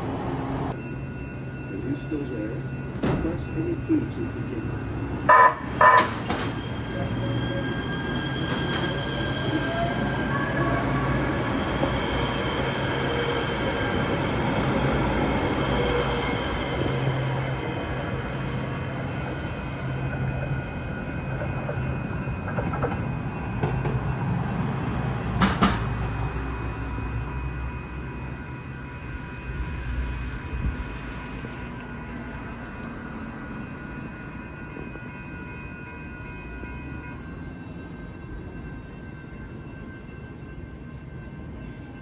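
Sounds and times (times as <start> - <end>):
train rumbling on tracks: 0.0 - 42.0
steel wheel squeal: 4.1 - 23.5.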